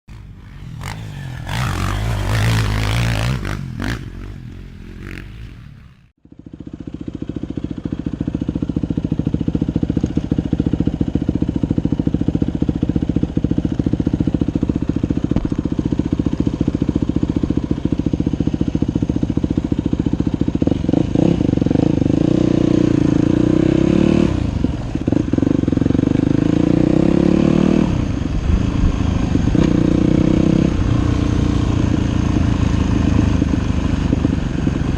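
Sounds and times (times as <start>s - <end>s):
noisy sound: 0.1s - 6.1s
dirt bike engine running: 0.1s - 34.9s.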